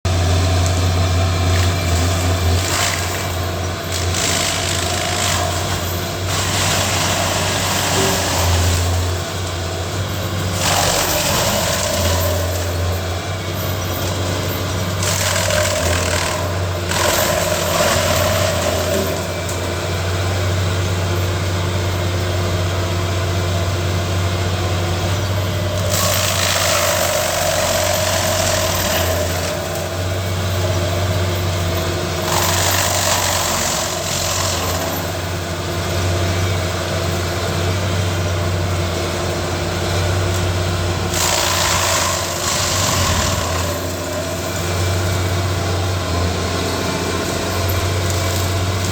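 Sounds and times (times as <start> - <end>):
machine engine running under load: 0.1 - 48.9
machine grinding wood: 0.1 - 48.9.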